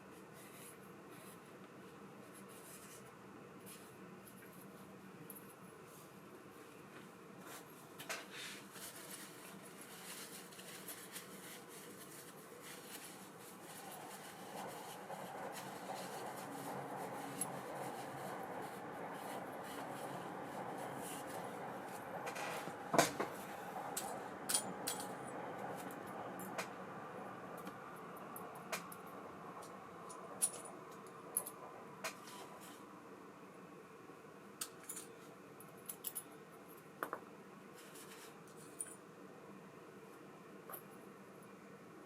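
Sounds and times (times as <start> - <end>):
faint rubbing of metal parts: 7.4 - 24.2, 37.8 - 39.0.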